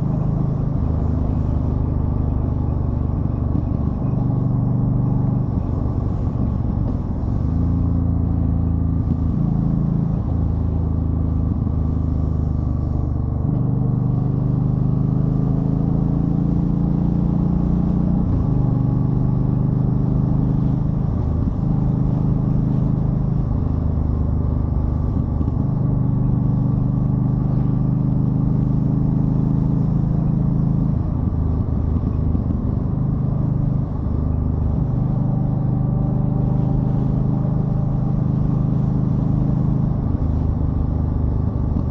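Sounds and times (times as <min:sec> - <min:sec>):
motorcycle engine changing pitch: 0:24.8 - 0:41.9.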